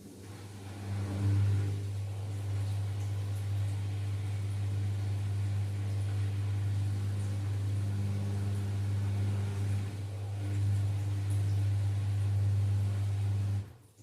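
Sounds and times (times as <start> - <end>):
washing machine spinning: 0.0 - 14.0.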